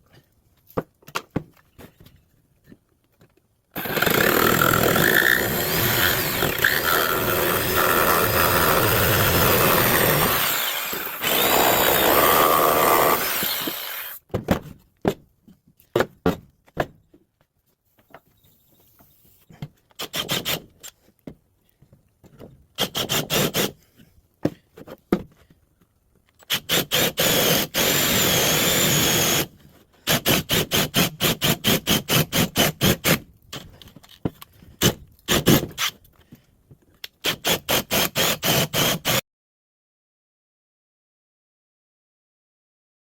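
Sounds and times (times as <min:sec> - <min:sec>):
drill boring into wood: 0:03.8 - 0:14.2, 0:26.5 - 0:29.5, 0:37.3 - 0:39.2.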